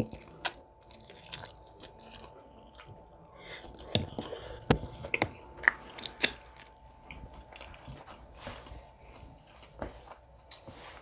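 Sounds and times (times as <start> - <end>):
chewing and swallowing: 0.0 - 9.8
cloth towel rustling: 8.1 - 11.0.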